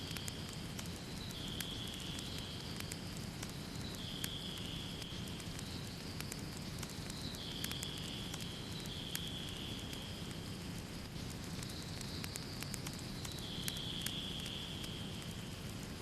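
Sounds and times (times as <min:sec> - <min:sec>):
wood fire crackling: 0:00.0 - 0:16.0
faint high whistling tone: 0:13.3 - 0:15.0.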